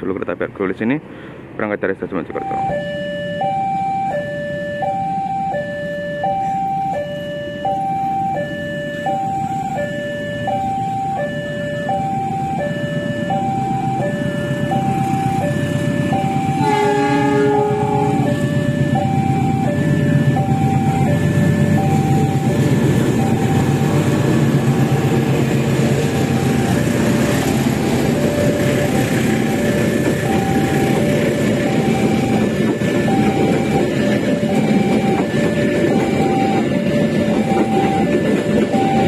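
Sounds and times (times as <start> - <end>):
level-crossing warning alarm: 2.2 - 39.0
train rumbling and clattering past: 12.4 - 39.0.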